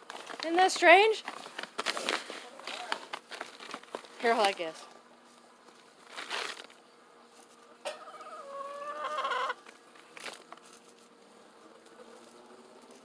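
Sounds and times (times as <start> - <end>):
hen squawking: 8.0 - 9.6.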